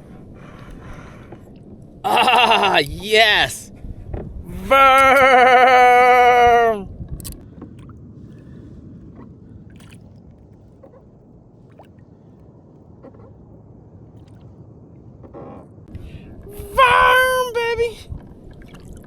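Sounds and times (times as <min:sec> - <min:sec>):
water lapping against a hull: 0:00.0 - 0:02.9, 0:06.2 - 0:19.0
faint clicks: 0:07.2 - 0:07.4.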